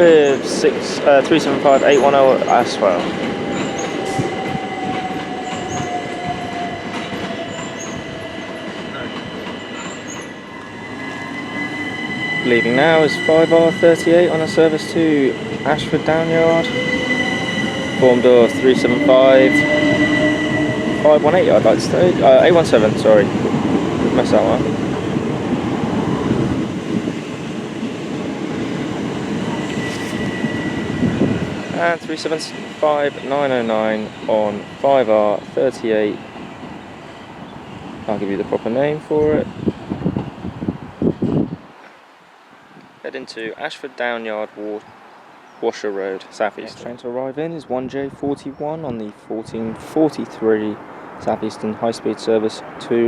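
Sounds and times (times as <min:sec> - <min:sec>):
train wheels rumbling on rail: 0:00.0 - 0:41.7
thin high whine: 0:09.7 - 0:23.3, 0:28.7 - 0:35.6.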